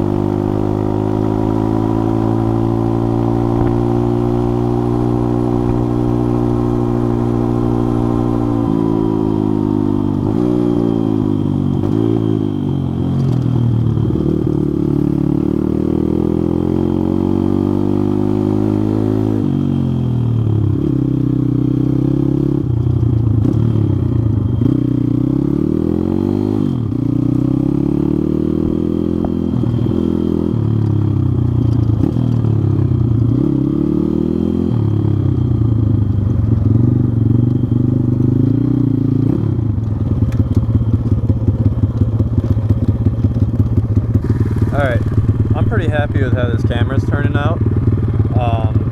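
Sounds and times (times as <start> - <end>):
pit bike engine revving: 0.0 - 19.4, 44.0 - 48.9.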